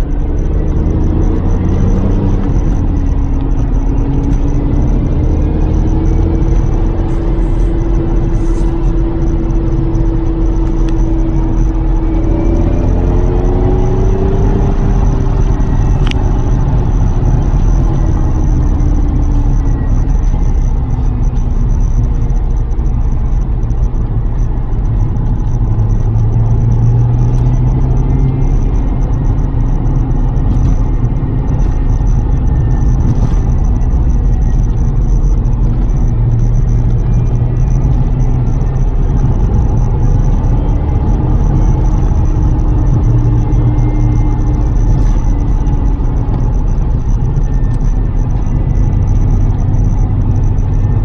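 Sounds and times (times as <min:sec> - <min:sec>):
car engine driving: 0:00.0 - 0:51.0
low road rumble: 0:00.0 - 0:51.0.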